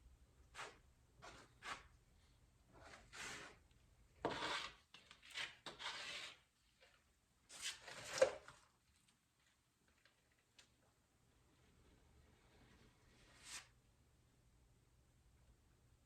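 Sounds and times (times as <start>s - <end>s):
spreader scraping filler on panel: 4.2s - 6.5s.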